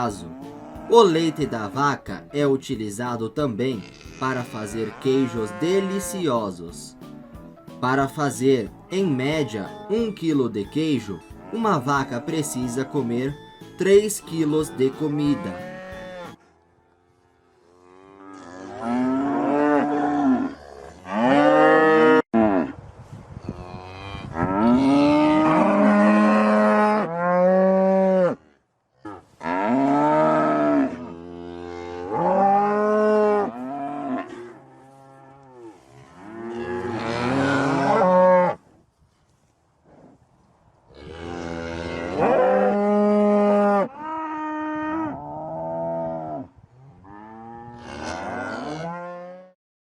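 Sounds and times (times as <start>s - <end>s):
cows mooing: 0.0s - 2.4s, 3.0s - 7.2s, 8.3s - 16.4s, 17.0s - 22.7s, 23.6s - 28.6s, 29.4s - 38.6s, 41.0s - 49.6s.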